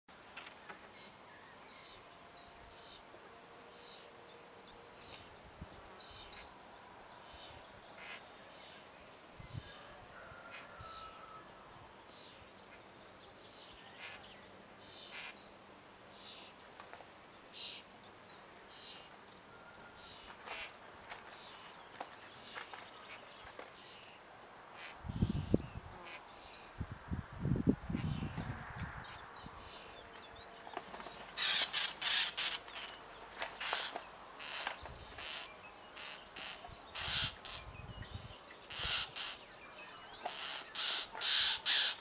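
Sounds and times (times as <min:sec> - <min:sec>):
outdoor background noise: 0:00.0 - 0:42.0
birds chirping: 0:00.1 - 0:42.0.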